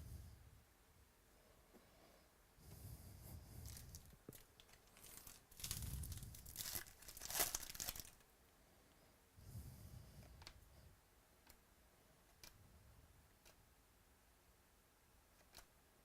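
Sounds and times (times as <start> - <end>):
card pack wrapper tearing: 3.7 - 8.2.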